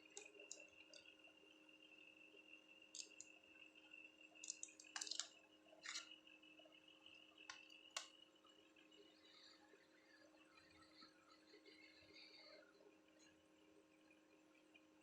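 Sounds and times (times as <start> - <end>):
faint electrical hum: 0.0 - 15.0
small tools clicking and scraping: 3.0 - 3.3, 4.4 - 6.1.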